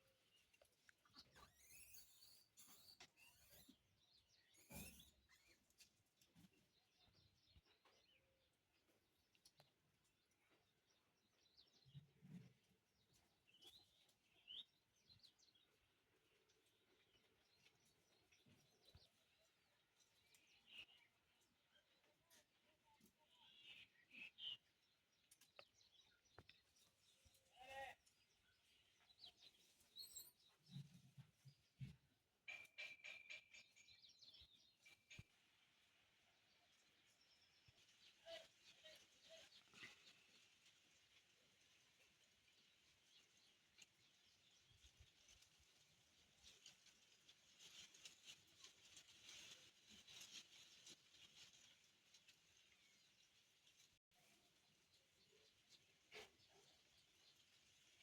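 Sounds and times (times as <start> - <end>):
faint high chirp: 1.0 - 8.4, 29.0 - 30.9
soft rustle: 36.8 - 58.0.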